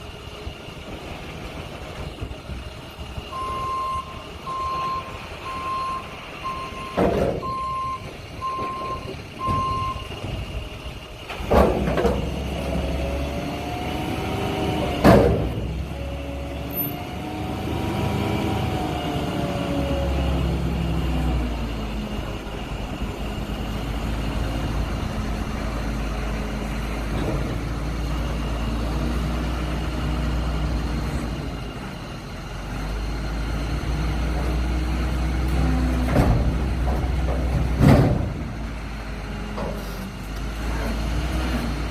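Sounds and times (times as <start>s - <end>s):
diesel truck engine revving: 0.0s - 41.9s
backup alarm beeping: 3.3s - 10.1s.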